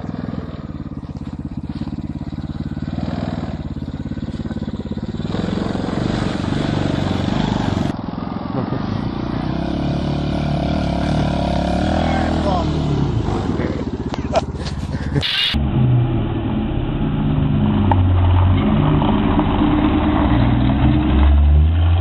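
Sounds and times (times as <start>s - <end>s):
small engine running: 0.0s - 7.9s.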